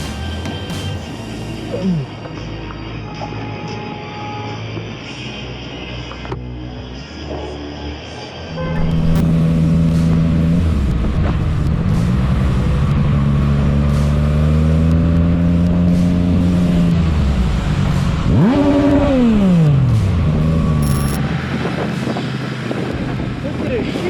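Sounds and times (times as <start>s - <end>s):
motorcycle engine revving: 8.5s - 23.4s.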